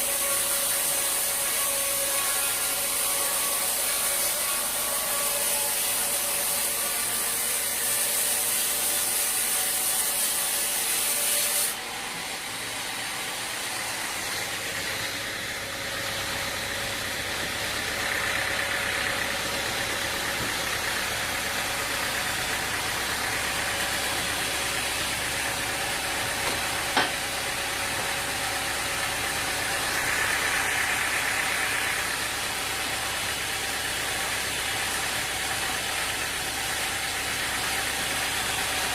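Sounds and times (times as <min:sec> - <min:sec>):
engine-driven machinery running: 0:11.8 - 0:38.9.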